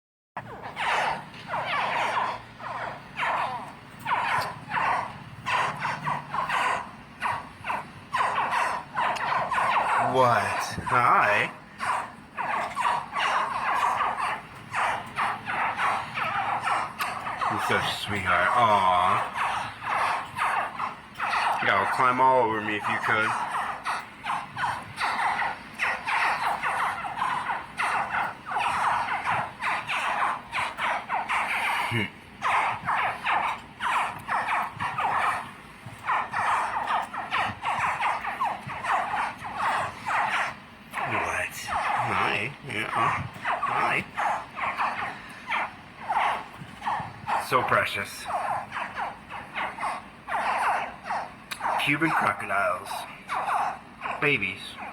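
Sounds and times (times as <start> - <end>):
steady low hum: 0.4 - 54.9
baby crocodiles chirping: 0.6 - 54.9.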